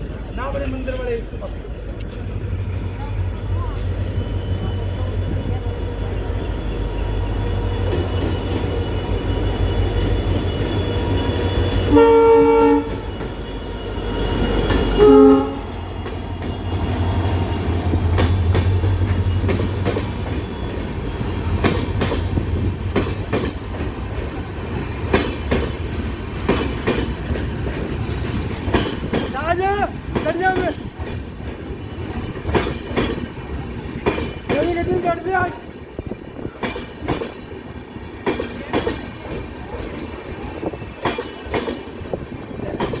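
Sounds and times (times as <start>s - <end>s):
diesel locomotive engine rumble: 0.0s - 43.0s
locomotive multi-tone horn: 11.0s - 13.1s, 13.8s - 15.8s
train wheels clattering over rail joints: 14.2s - 35.3s, 36.0s - 43.0s.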